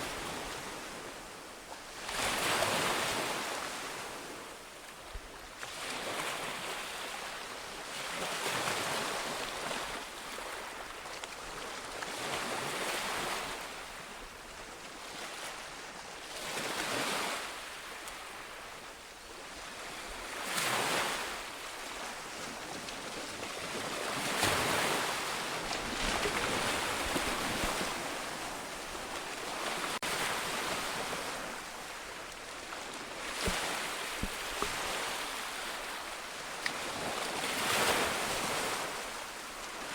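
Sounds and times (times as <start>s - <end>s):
ocean waves breaking on shore: 14.8s - 39.9s.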